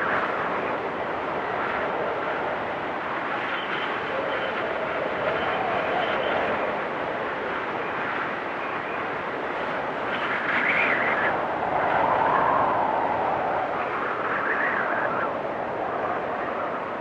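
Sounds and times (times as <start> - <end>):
storm wind blowing in gusts: 0.0 - 17.0.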